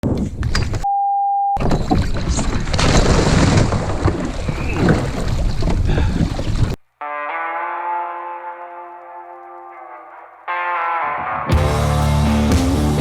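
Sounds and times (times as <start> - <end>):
steady single-pitch beep: 0.8 - 1.6.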